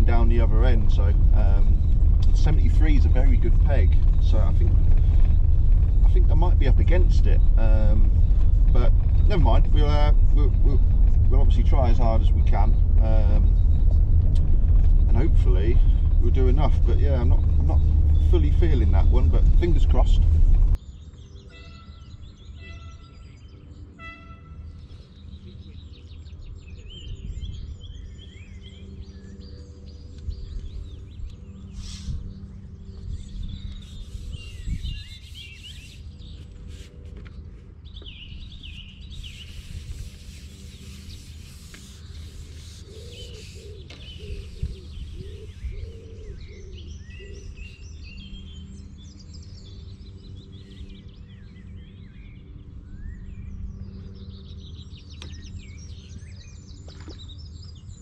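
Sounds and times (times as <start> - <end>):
steady low hum: 0.0 - 21.4, 24.8 - 58.0
songbirds singing and chirping: 0.0 - 58.0.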